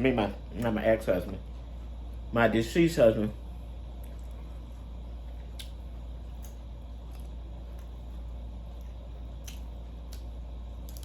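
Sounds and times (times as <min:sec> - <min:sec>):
steady low hum: 0:00.0 - 0:11.0
person chewing food: 0:04.0 - 0:11.0
wet mouth clicks: 0:05.4 - 0:07.4.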